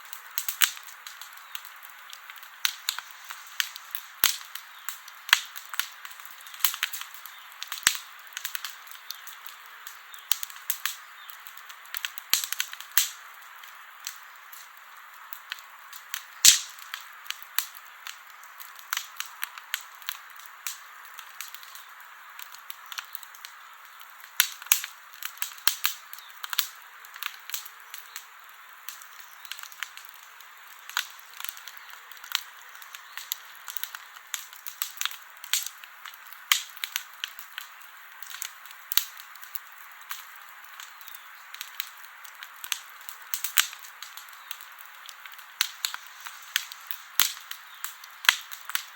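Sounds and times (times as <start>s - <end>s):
campfire crackling and popping: 0.0s - 48.9s
hiss of burning fire: 0.0s - 48.9s.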